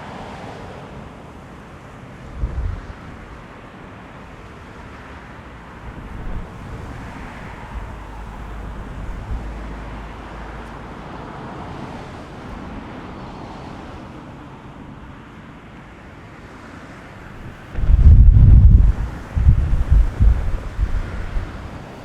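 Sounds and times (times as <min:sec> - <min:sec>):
wind buffeting microphone: 0:02.3 - 0:03.5, 0:04.7 - 0:13.4, 0:17.2 - 0:22.0
outdoor rushing noise: 0:02.3 - 0:15.2, 0:16.6 - 0:22.0.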